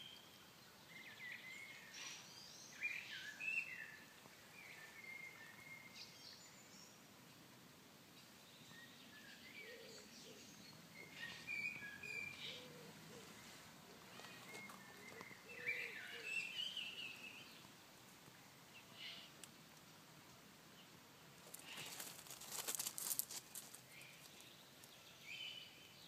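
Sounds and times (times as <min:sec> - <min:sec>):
birds chirping and singing: 0:08.6 - 0:17.6.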